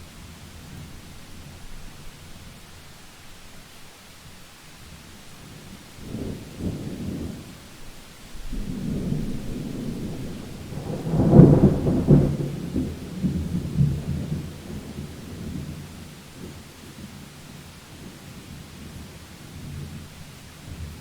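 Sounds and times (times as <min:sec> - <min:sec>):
thunder rumble and crack: 0:08.4 - 0:16.0.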